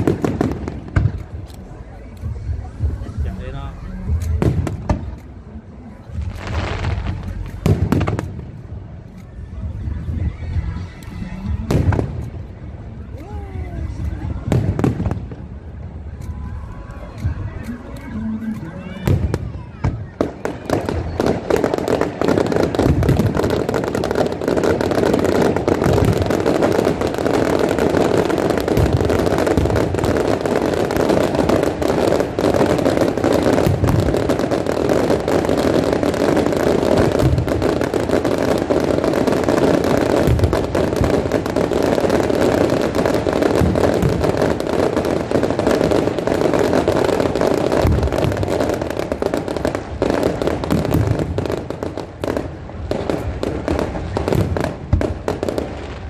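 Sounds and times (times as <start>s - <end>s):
fireworks booms: 0.0s - 5.3s, 6.1s - 12.5s, 13.2s - 16.4s, 18.8s - 56.0s
fireworks crackling: 0.0s - 56.0s.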